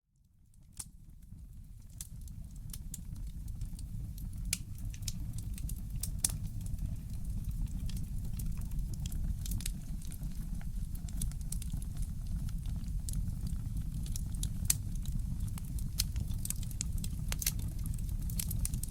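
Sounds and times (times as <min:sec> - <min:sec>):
wood fire crackling: 0:00.7 - 0:18.9
low steady rumble: 0:01.0 - 0:18.9.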